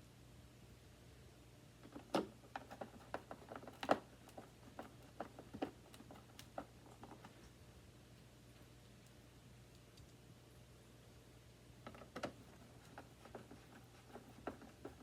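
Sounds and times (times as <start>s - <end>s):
plastic parts clicking and knocking: 11.8s - 15.0s.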